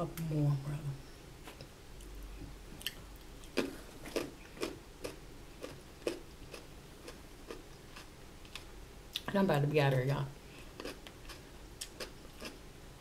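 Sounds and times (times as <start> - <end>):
crunchy chewing of vegetables: 1.5 - 9.3, 10.6 - 12.7.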